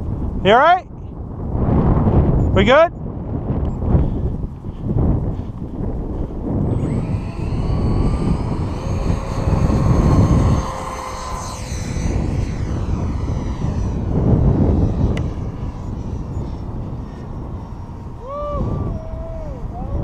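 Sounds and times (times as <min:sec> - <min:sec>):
model jet flying past: 0:05.6 - 0:20.0.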